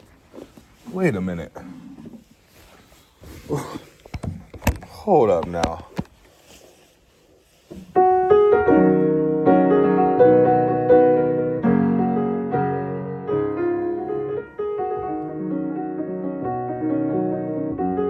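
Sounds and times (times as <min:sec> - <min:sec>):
piano playing: 0:08.0 - 0:18.0.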